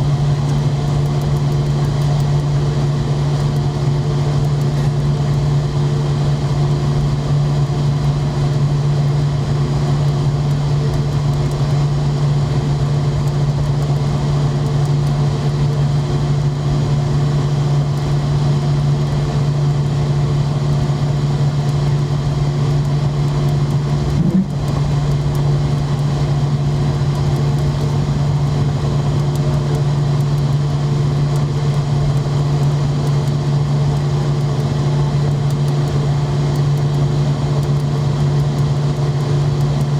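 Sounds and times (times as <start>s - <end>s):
airliner low hum: 0.0s - 39.9s.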